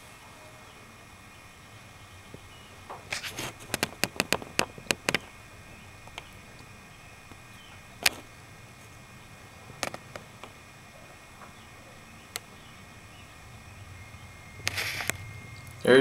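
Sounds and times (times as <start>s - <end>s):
sharp clicks: 3.1s - 5.3s.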